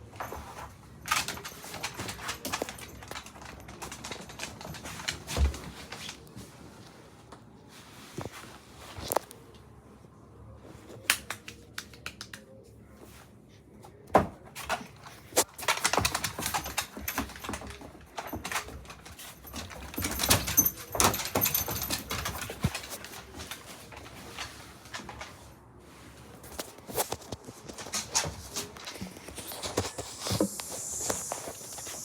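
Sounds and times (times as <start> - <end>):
dog clicking and scratching: 0.1 - 6.3, 14.6 - 25.5, 26.4 - 32.0.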